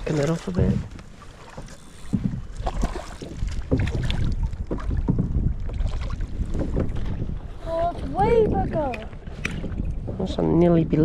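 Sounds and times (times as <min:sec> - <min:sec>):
knocks and clatter on kayak: 0:00.0 - 0:10.6
wind rumbling on microphone: 0:00.0 - 0:11.0.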